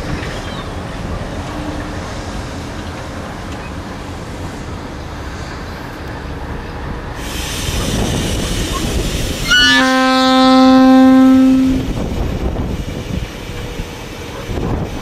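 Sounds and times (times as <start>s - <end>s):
freight train wheels rumbling: 0.0s - 15.0s
train horn: 9.4s - 12.1s.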